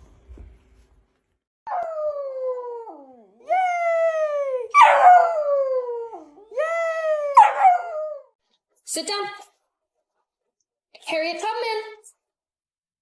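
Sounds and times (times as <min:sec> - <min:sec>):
dog howling: 0:01.7 - 0:08.3.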